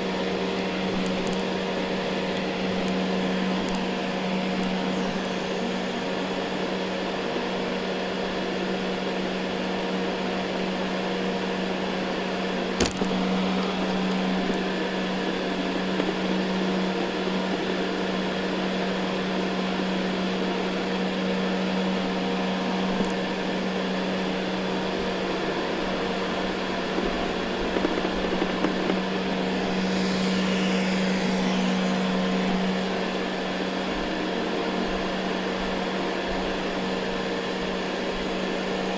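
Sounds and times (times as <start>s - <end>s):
robot vacuum motor whirring: 0.8s - 6.8s, 12.8s - 17.6s, 27.0s - 34.4s.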